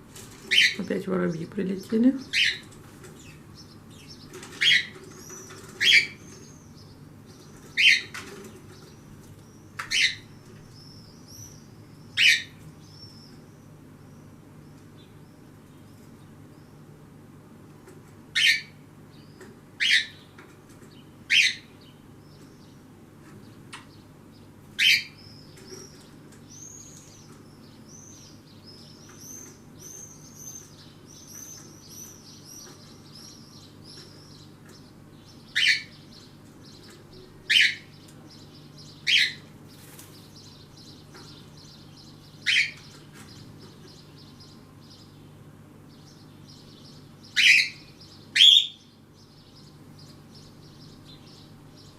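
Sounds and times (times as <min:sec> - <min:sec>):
birds calling: 0:00.0 - 0:51.9
birds twittering: 0:00.0 - 0:51.9
faint steady hum: 0:00.0 - 0:51.9.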